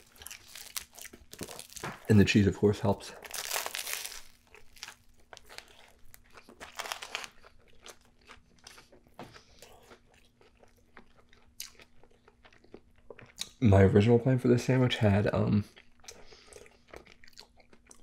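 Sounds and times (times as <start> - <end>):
crunchy bite into sandwich: 0.0 - 2.1, 3.2 - 8.9
crunchy chewing: 0.0 - 2.2, 3.2 - 13.6, 15.6 - 18.0.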